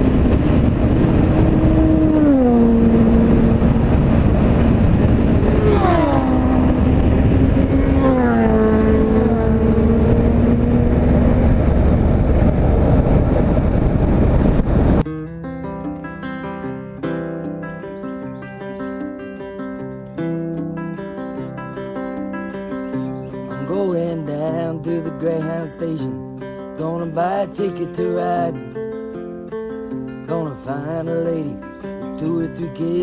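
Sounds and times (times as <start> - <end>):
passing vehicle engines: 0.0 - 15.1
wind and road noise: 0.0 - 33.0.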